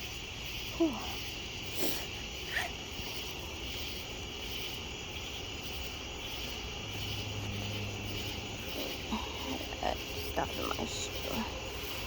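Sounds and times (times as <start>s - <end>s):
insect chorus trilling: 0.0s - 12.0s.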